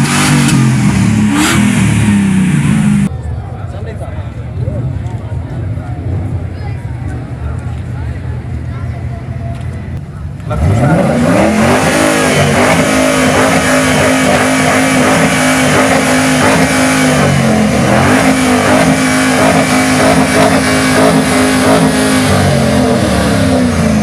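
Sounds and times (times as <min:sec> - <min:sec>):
car engine revving high: 0:00.0 - 0:03.1, 0:10.5 - 0:24.0.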